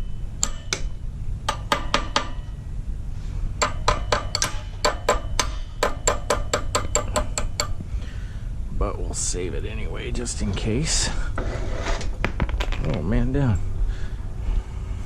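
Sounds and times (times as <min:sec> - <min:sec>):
metallic clicks of hand tools: 0:00.4 - 0:00.9, 0:03.6 - 0:07.8.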